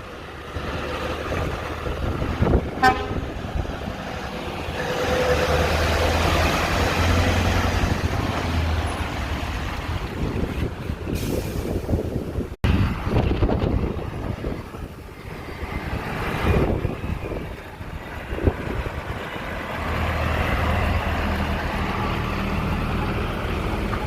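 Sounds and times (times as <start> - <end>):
truck passing by: 0.0 - 24.0
truck horn toot: 2.8 - 3.4.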